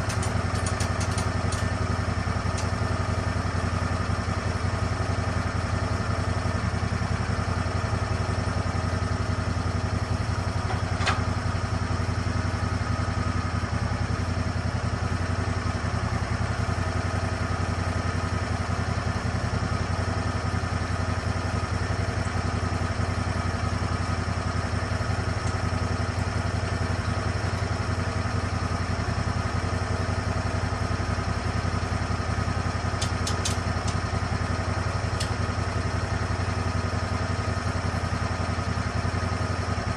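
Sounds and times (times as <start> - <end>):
sharp clicks: 0.0 - 1.7, 33.0 - 34.0
sawmill engine running: 0.0 - 39.9.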